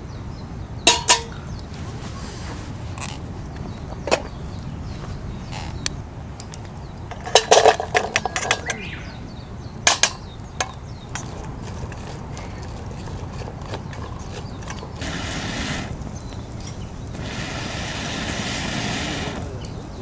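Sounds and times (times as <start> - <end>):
cookware clinking and knocking: 0.9 - 1.5, 7.1 - 9.0, 9.9 - 15.0.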